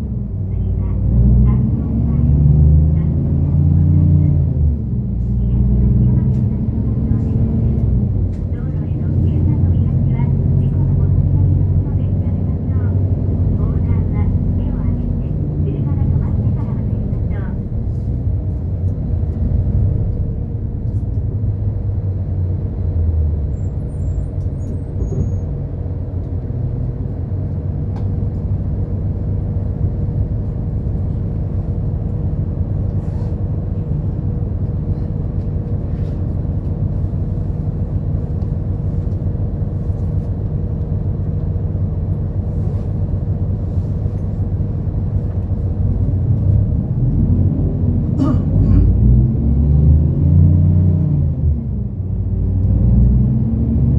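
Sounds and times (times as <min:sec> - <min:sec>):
bus engine and road rumble: 0:00.0 - 0:53.9.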